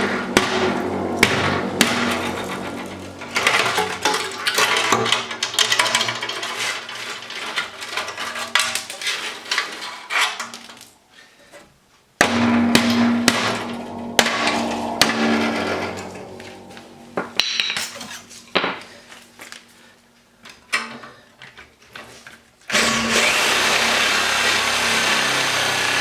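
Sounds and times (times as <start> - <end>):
steady hum: 0.0 - 5.4, 12.2 - 19.6
evenly spaced metal strikes: 0.0 - 5.6, 12.2 - 19.5
metal clanking and knocking: 0.0 - 6.5, 12.2 - 18.8.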